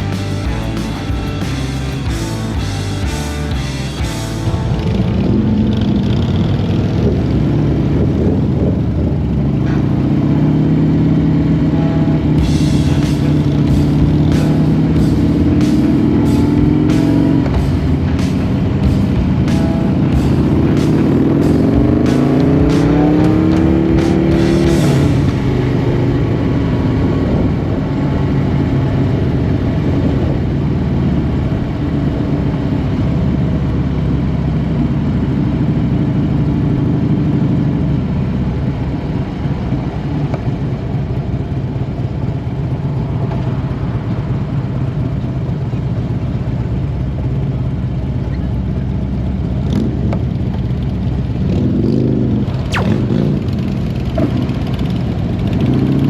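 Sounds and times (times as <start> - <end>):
motorcycle engine running: 0.0 - 56.0
brief sharp sound: 11.7 - 26.5, 52.7 - 53.8.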